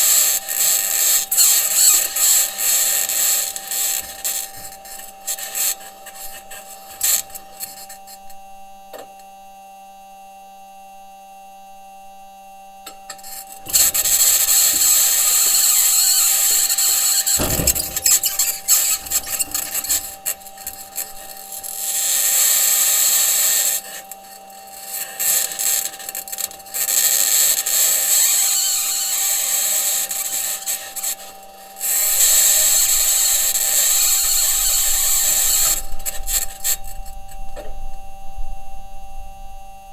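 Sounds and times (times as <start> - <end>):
metal wheels grinding over rocks: 0.0 - 7.8, 13.1 - 37.7
steady electrical hum: 12.2 - 39.9
high-pitched scraping and clanking: 13.1 - 37.7.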